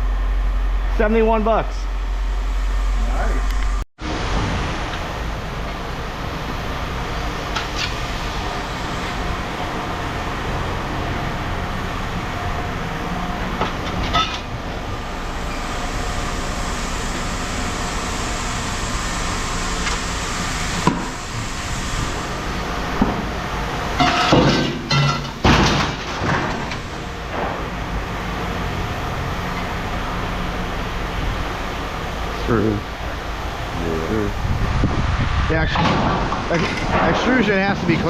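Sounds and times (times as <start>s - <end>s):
rumbling machinery hum: 0.0s - 38.0s
metal clanks and knocks: 13.6s - 14.5s, 24.0s - 27.7s, 35.7s - 37.6s.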